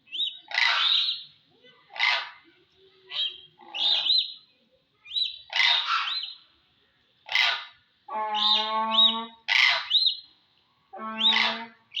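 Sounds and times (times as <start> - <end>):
crane calling harshly: 7.3 - 10.1, 10.9 - 12.0.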